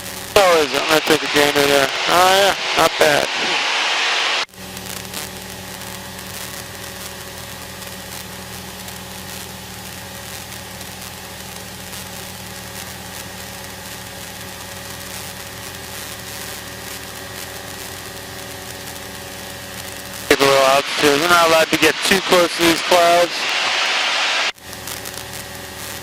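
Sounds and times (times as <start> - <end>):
air noise: 0.0 - 9.0, 15.4 - 26.0
propeller plane engine drone: 0.0 - 26.0.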